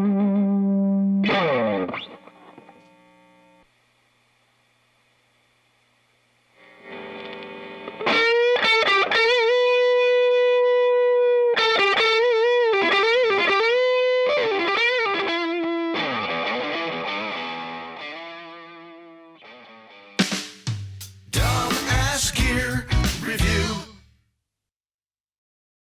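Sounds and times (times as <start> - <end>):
overdriven electric guitar: 0.0 - 3.6, 6.6 - 20.2, 21.4 - 24.0.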